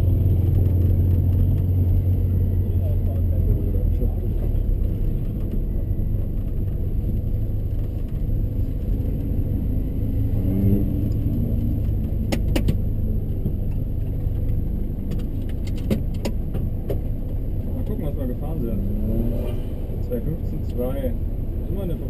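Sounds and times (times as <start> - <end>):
car engine rumbling at low revs: 0.0 - 22.0.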